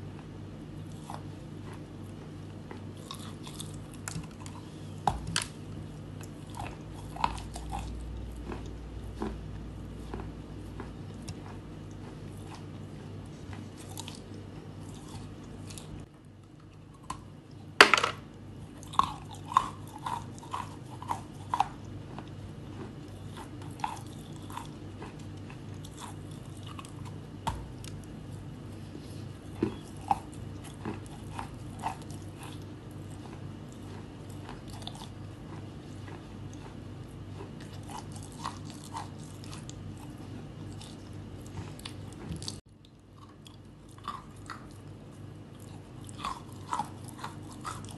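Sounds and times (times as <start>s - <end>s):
low steady hum: 0.0s - 47.9s
biting and chewing chalk: 0.1s - 17.7s, 18.7s - 47.9s.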